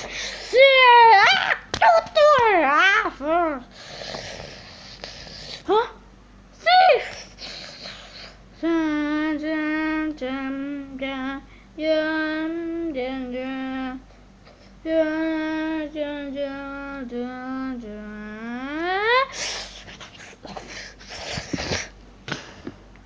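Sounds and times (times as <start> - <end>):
high voice singing slow melody: 14.9 - 19.2.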